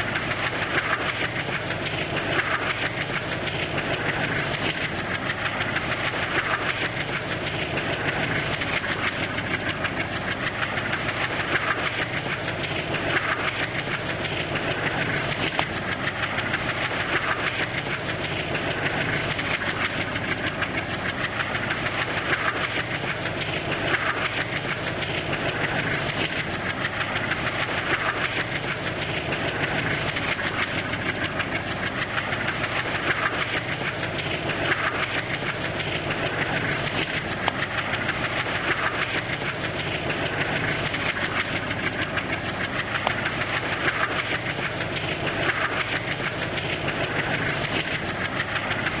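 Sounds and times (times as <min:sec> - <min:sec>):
clickety-clack of rail joints: 0:00.0 - 0:49.0
train wheels rolling on rails: 0:00.0 - 0:49.0.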